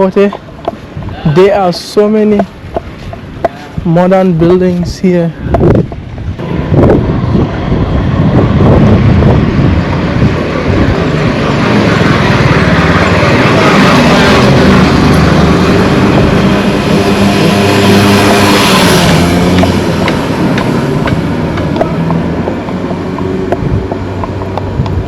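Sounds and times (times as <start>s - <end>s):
rushing noise: 0.0s - 25.0s
engine droning loudly: 6.4s - 25.0s.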